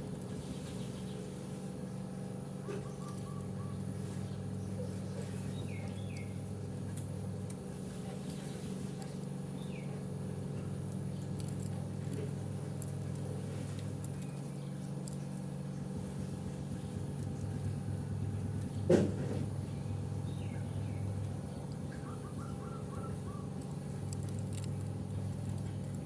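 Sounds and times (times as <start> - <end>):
low machine hum: 0.0 - 26.0
faint bird chirps: 21.9 - 23.5.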